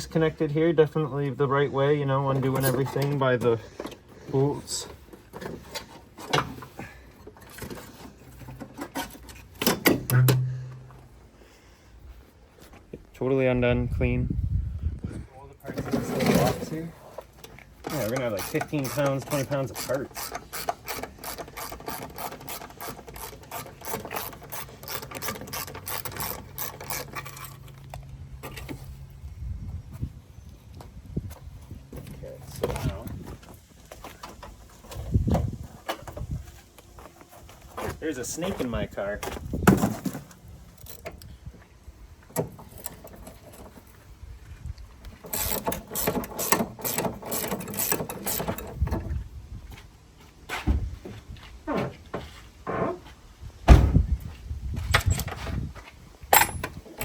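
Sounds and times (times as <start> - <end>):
steady low hum: 10.0 - 12.5
rapid ratchet clicking: 18.0 - 27.5
ratchet wrench clicking: 45.3 - 48.4.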